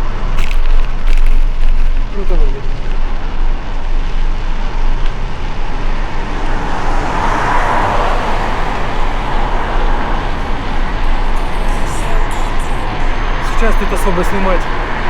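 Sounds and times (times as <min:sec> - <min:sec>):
traffic rush: 0:00.0 - 0:15.0
wind noise: 0:00.0 - 0:15.0
vehicle passing: 0:05.4 - 0:15.0.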